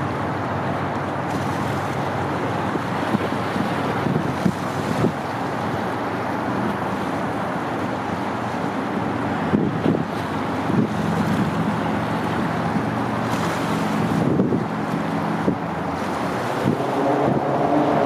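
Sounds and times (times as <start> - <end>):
low engine hum: 0.0 - 18.0
waterfront noise: 0.0 - 18.0
wind buffeting microphone: 2.1 - 7.4, 9.4 - 18.0.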